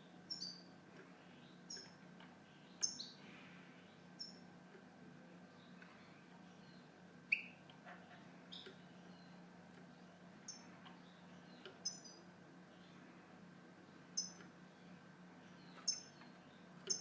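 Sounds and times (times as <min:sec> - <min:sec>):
faint low hum: 0:00.0 - 0:17.0
goldfinch chirping and twittering: 0:00.3 - 0:00.7, 0:01.3 - 0:03.2, 0:03.9 - 0:04.4, 0:10.4 - 0:13.0, 0:14.2 - 0:17.0.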